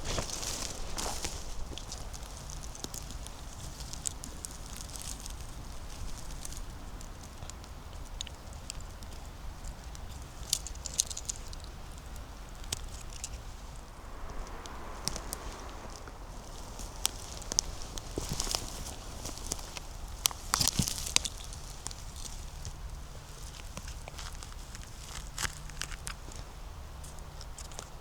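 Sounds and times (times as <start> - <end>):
dry leaves and twigs crackling: 0.0 - 7.4, 10.0 - 26.4
faint low rumble: 13.0 - 20.6.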